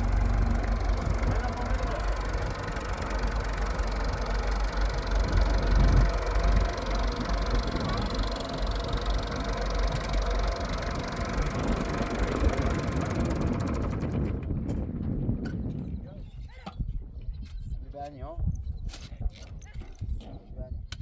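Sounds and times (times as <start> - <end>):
engine idling: 0.0 - 14.9.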